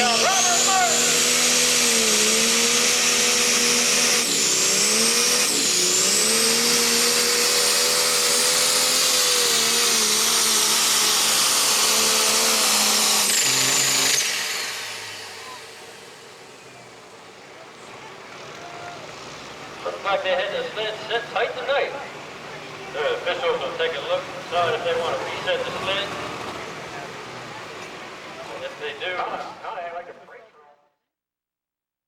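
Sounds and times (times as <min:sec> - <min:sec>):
turbo whine: 0:00.0 - 0:17.4
tractor diesel engine at full revs: 0:00.0 - 0:29.4.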